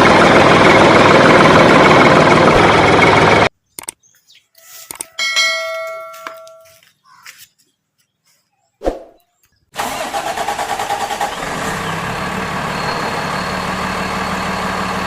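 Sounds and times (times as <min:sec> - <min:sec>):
bell-like ding: 0:05.2 - 0:06.8
toy vehicle engine noise: 0:09.8 - 0:15.0.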